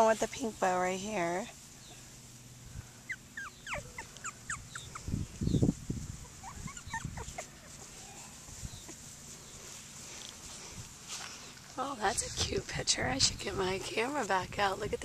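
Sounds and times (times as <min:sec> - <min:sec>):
puppies squeaking and whimpering: 0:03.0 - 0:05.6, 0:06.2 - 0:09.0.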